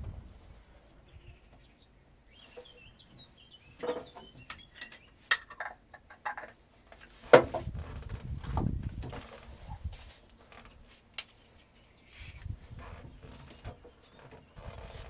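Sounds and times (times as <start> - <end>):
small birds chirping: 0.7 - 5.4, 11.2 - 12.6.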